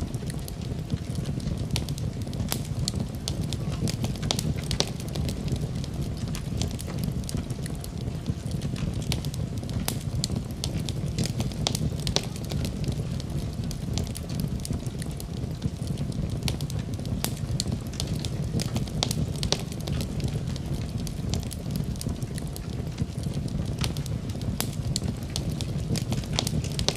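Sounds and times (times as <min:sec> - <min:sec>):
fire crackling in a fireplace: 0:00.0 - 0:26.9.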